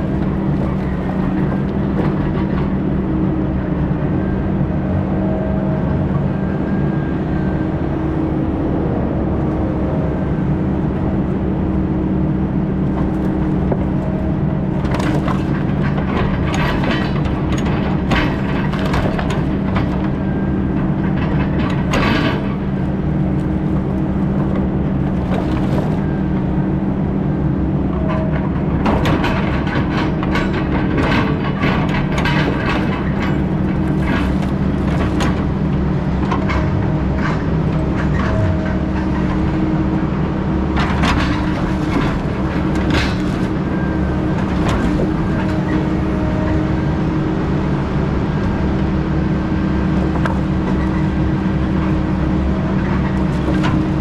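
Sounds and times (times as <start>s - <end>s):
diesel logging machine running: 0.0s - 54.0s.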